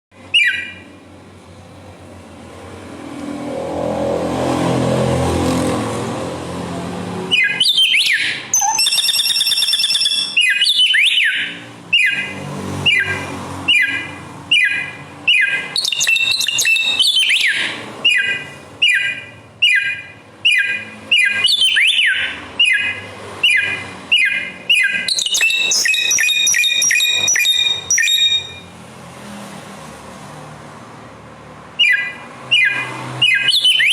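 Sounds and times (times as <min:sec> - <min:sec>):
bird whistling phrases: 0:00.3 - 0:00.8, 0:07.3 - 0:12.3, 0:12.9 - 0:28.6, 0:31.8 - 0:33.9.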